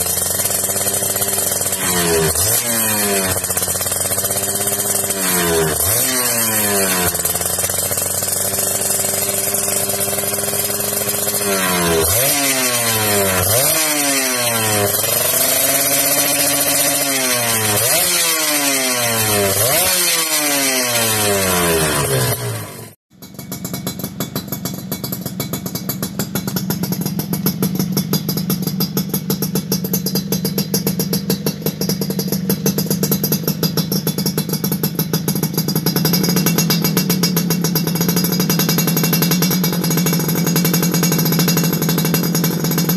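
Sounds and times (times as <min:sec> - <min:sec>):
engine running steadily: 0:00.0 - 0:06.3, 0:07.0 - 0:13.8
motorcycle engine revving: 0:00.0 - 0:42.9.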